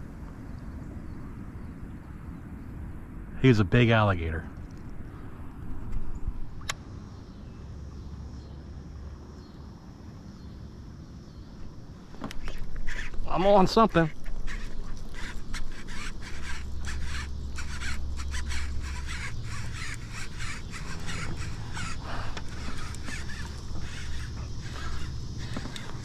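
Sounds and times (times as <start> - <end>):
low steady hum: 0.0 - 26.0
birds calling: 10.3 - 26.0.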